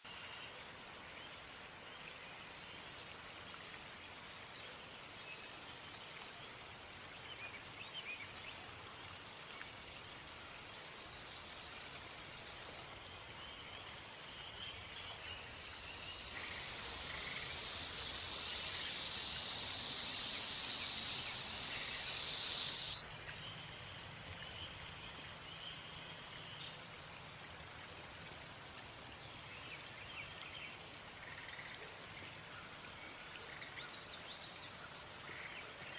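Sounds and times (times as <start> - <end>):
faint bird or insect chirps: 0.0 - 27.1, 28.4 - 35.9
snake hissing: 14.4 - 23.3.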